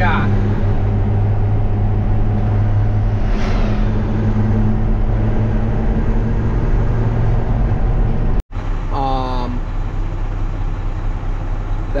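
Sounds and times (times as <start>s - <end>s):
vehicle engine and road drone: 0.0s - 12.0s
brief rush of noise: 3.0s - 4.6s.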